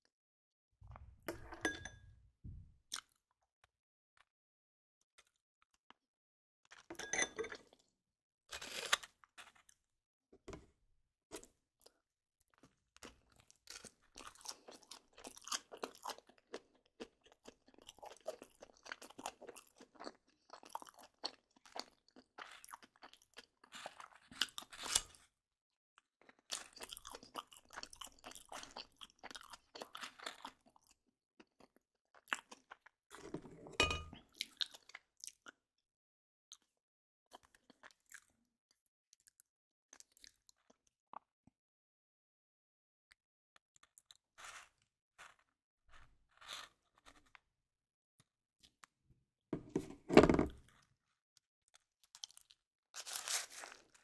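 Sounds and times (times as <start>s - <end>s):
crisp crunching and crackling: 46.3s - 47.4s, 52.1s - 54.0s.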